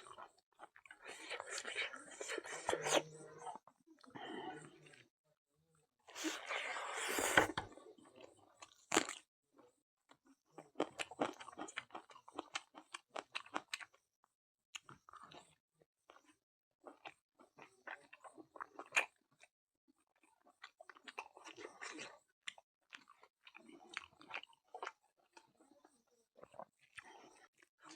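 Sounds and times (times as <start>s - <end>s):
person chewing food: 6.1s - 7.8s, 10.6s - 14.0s, 16.1s - 19.5s, 20.2s - 27.9s.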